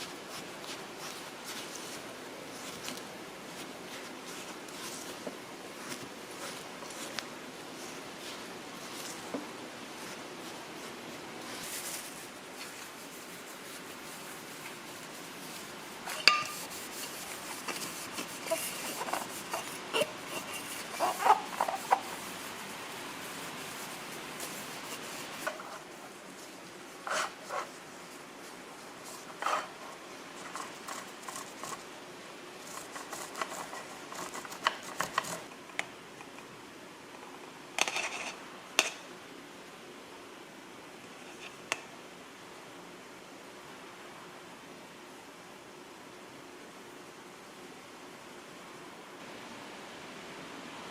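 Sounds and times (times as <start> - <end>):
steady background hiss: 0.0 - 50.9
dishes and utensils clinking: 16.1 - 22.1.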